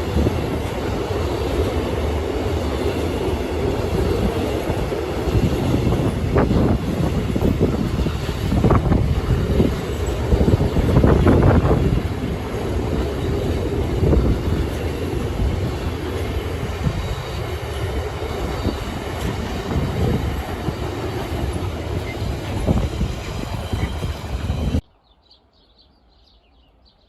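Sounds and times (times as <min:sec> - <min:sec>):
train wagons rumbling on track: 0:00.0 - 0:24.8.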